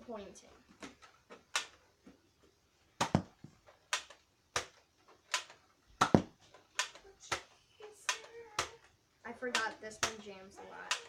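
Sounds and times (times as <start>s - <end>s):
plastic toy blaster clicks: 1.5s - 1.8s, 3.9s - 5.6s, 6.7s - 7.5s, 8.1s - 11.0s.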